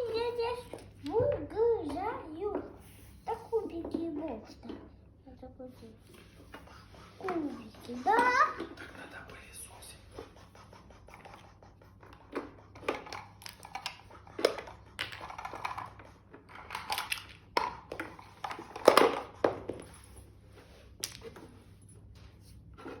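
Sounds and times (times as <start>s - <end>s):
toy cubes clattering: 13.0s - 19.3s.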